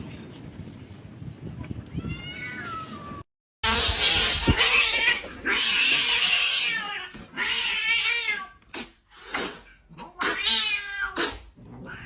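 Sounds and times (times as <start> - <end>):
cat meowing: 1.9 - 3.2, 10.1 - 11.2, 11.8 - 12.0.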